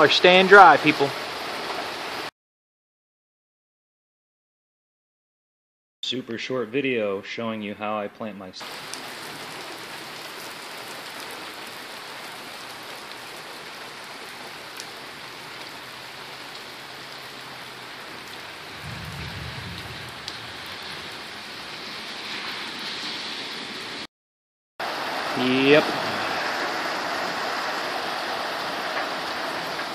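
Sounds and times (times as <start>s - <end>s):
steady rain falling: 0.0s - 2.3s, 8.6s - 24.1s, 24.8s - 29.9s
brief low rumble: 18.8s - 20.7s.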